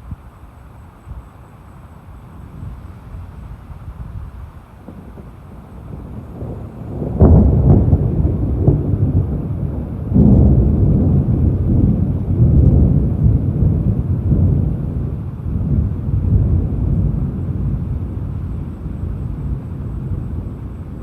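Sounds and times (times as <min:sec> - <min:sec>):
deep rumbling thunder: 0:02.4 - 0:21.0.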